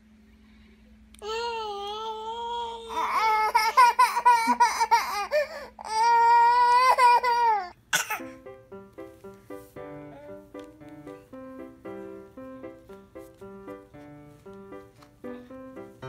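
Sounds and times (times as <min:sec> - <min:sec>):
baby crying: 0:01.2 - 0:08.3, 0:10.1 - 0:10.5
piano-like music: 0:08.0 - 0:16.0.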